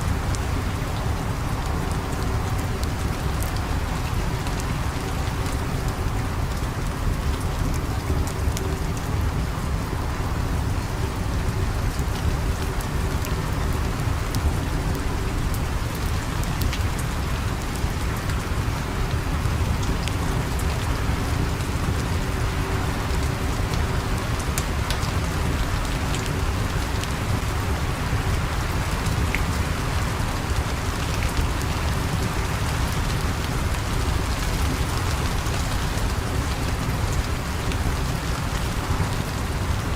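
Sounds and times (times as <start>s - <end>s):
steady rain: 0.0s - 39.9s
wood fire crackling: 11.4s - 39.9s.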